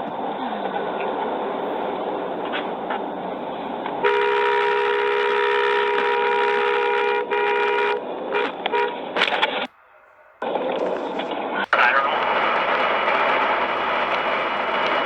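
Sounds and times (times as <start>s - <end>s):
road noise: 0.0s - 15.0s
car horn blaring: 4.0s - 11.2s.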